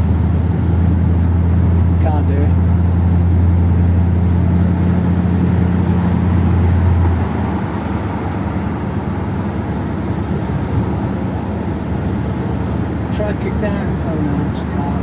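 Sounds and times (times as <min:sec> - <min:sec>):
car engine droning: 0:00.0 - 0:15.0
road and tyre rush: 0:00.0 - 0:15.0.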